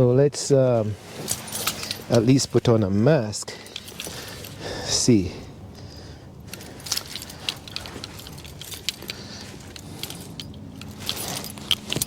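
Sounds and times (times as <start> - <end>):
rustling of face mask handling: 0.7 - 12.0.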